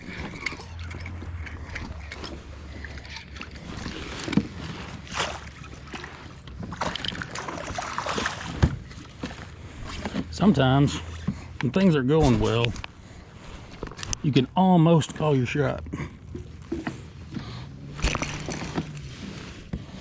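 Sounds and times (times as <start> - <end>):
water sloshing and swishing: 0.0 - 20.0.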